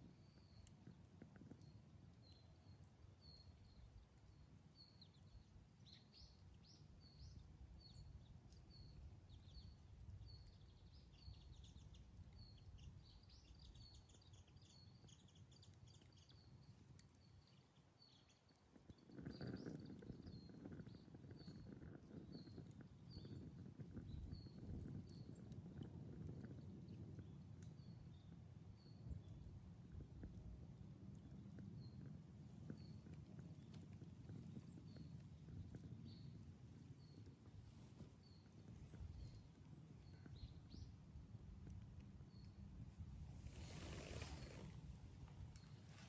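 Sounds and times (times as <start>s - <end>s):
campfire crackling: 0.0s - 46.0s
low rushing hiss: 42.9s - 46.0s.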